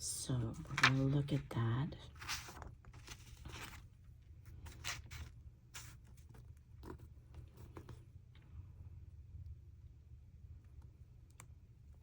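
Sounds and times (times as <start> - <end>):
low steady hum: 0.0 - 12.0
paper rustling: 0.4 - 8.0.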